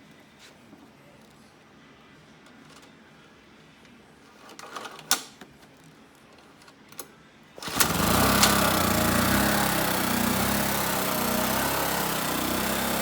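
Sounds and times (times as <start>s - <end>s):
generator starter clicks and knocks: 7.6s - 9.3s
small generator engine running: 7.6s - 13.0s.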